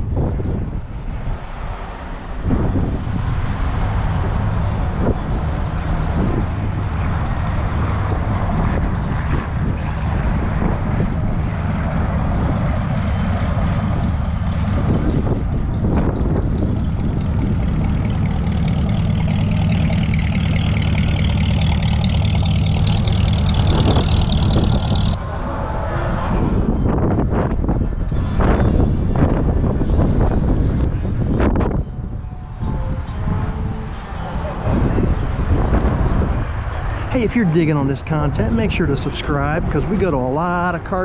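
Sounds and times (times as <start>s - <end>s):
high whine rising in pitch: 2.4s - 29.0s
car engine running: 2.6s - 25.2s.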